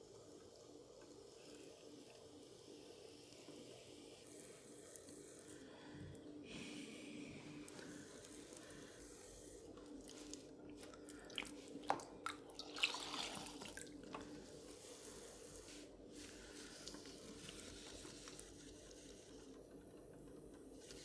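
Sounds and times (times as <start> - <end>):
wet clay squelching on pottery wheel: 7.6 - 19.2.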